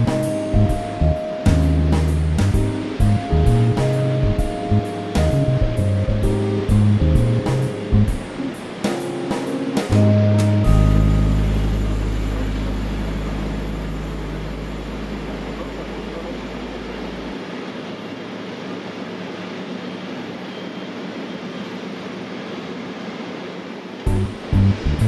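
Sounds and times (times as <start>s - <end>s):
jet engines idling hiss: 0.0s - 25.0s
low hum: 9.9s - 17.7s, 24.0s - 25.0s.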